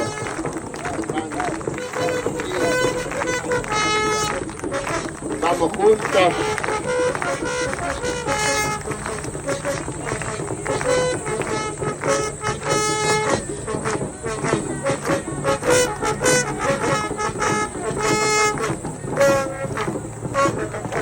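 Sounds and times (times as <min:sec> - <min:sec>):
drums beating: 0:00.0 - 0:21.0
horn blasts: 0:00.0 - 0:21.0.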